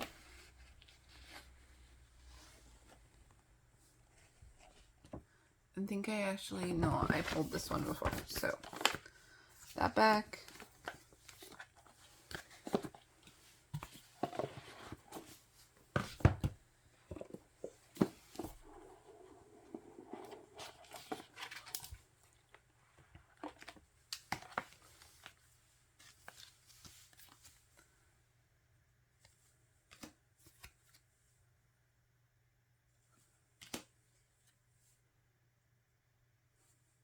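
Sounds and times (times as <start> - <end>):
paper and card rustling: 6.7 - 16.5, 17.1 - 22.0.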